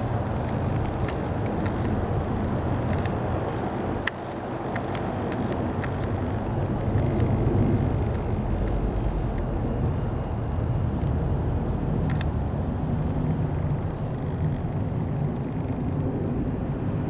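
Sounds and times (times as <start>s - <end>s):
jet airliner passing over: 4.7s - 17.0s.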